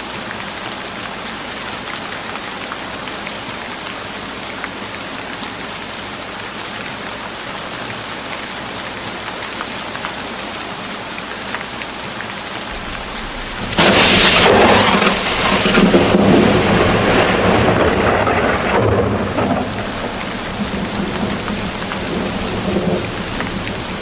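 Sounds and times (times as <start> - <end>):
steady rain: 0.0 - 24.0
thunder crack and rumble: 12.7 - 24.0.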